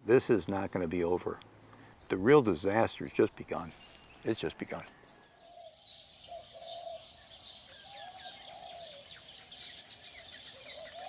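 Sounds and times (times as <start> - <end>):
bird low calls: 3.7 - 11.0.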